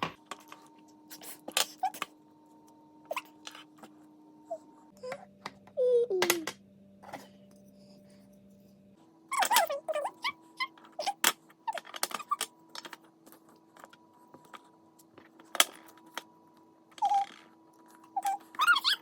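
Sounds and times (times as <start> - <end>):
small child vocal sounds: 4.5 - 6.5.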